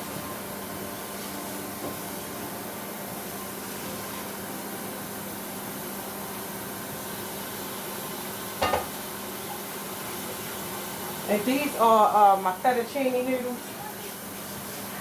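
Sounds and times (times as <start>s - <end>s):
brief knock: 8.6s - 9.0s
tap water running: 8.6s - 9.2s.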